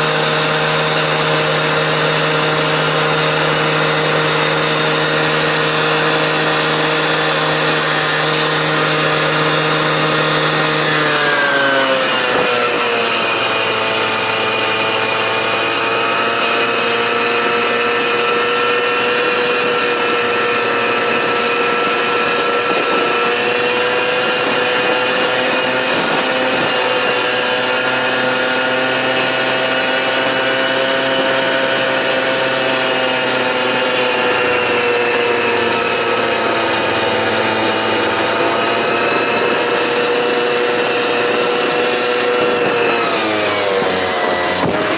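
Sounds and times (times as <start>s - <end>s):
cut-off saw cutting pipe: 0.0s - 44.9s.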